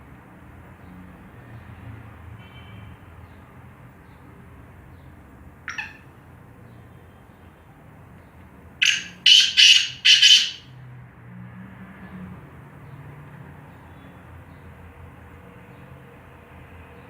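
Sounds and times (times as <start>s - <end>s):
bird harsh calls: 5.7s - 6.1s, 8.8s - 10.6s.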